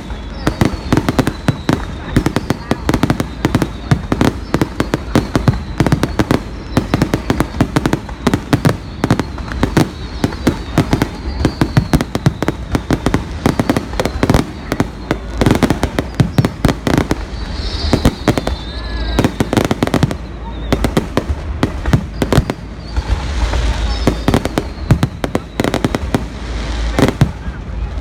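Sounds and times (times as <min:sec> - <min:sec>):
fireworks bangs: 0:00.0 - 0:28.0.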